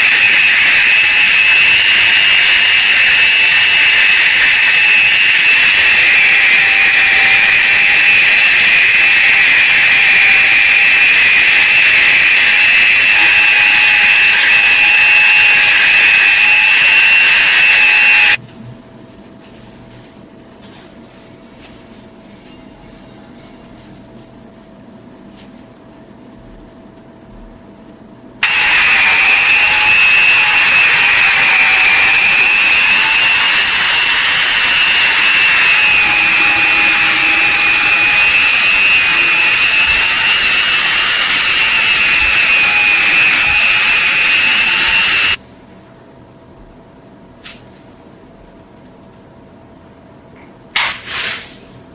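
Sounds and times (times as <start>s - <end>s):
power tool whining: 0.0s - 18.4s, 28.4s - 45.4s.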